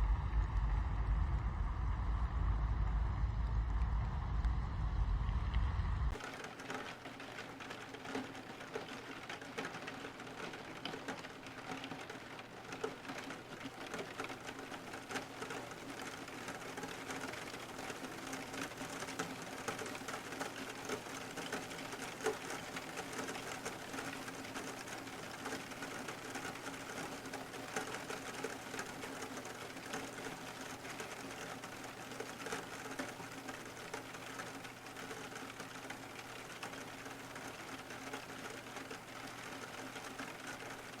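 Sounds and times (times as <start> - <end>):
steady low hum: 0.0 - 6.2
rain pattering on car roof: 0.0 - 41.0.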